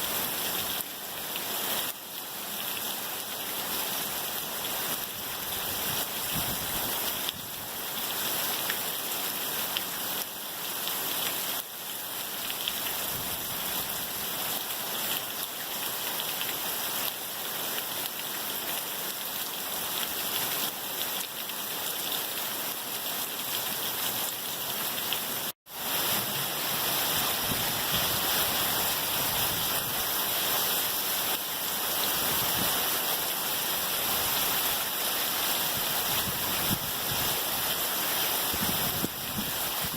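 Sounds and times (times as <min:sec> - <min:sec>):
torrential rain pouring: 0:00.0 - 0:39.9.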